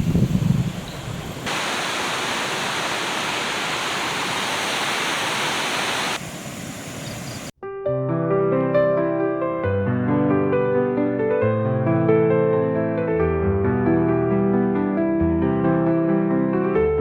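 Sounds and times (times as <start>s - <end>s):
waterfall rushing: 1.4s - 7.5s.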